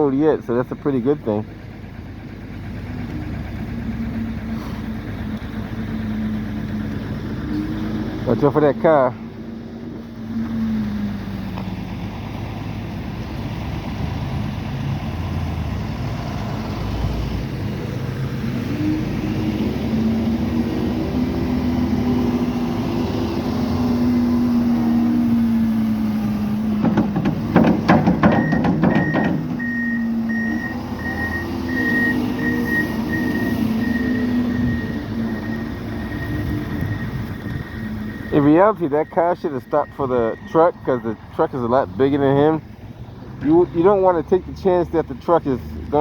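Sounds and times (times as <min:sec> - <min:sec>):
diesel engine revving: 0:00.0 - 0:46.0
rattling knocks: 0:26.7 - 0:29.8
reversing alarm beeping: 0:28.1 - 0:41.6.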